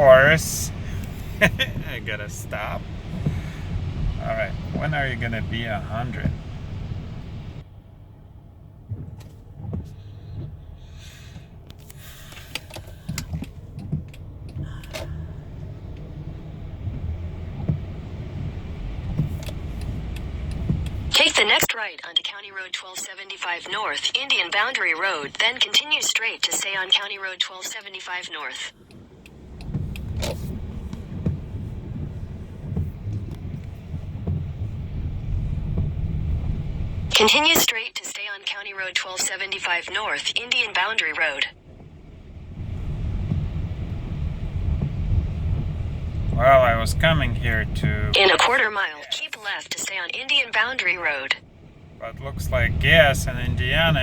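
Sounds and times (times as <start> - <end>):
car engine rumble from inside cabin: 0.0 - 21.2, 28.7 - 37.2, 41.3 - 48.7, 50.3 - 54.0.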